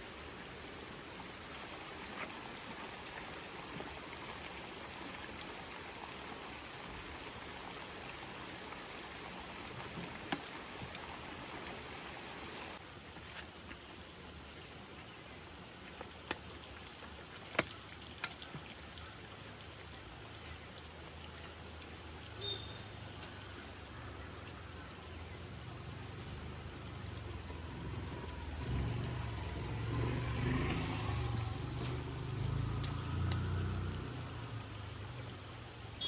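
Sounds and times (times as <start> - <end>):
steady background hiss: 0.0 - 36.0
car engine rumbling: 26.0 - 35.8.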